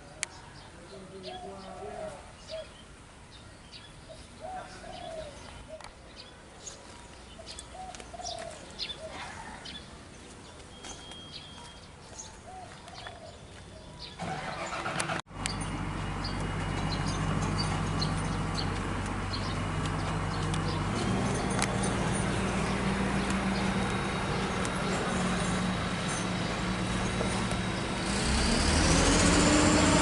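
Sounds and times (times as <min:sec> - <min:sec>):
birds chirping: 0:00.0 - 0:30.0
doves cooing: 0:04.4 - 0:05.9
excavator diesel engine: 0:14.2 - 0:30.0.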